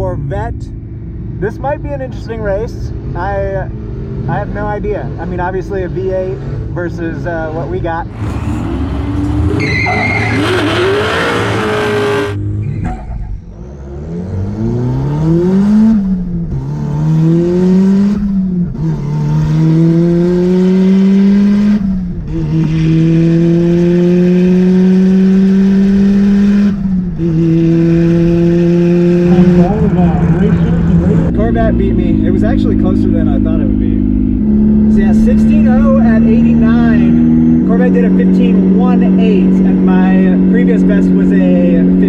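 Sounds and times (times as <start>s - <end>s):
car engine at full throttle: 8.1s - 12.5s, 14.3s - 31.6s.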